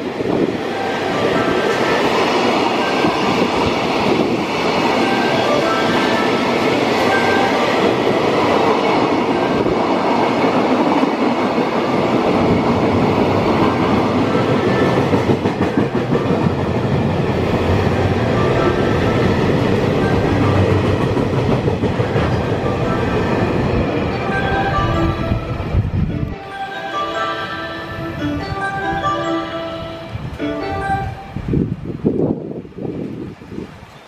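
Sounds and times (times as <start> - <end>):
freight train rumbling past: 0.0 - 34.0
wheels clacking over rail joints: 0.2 - 24.8.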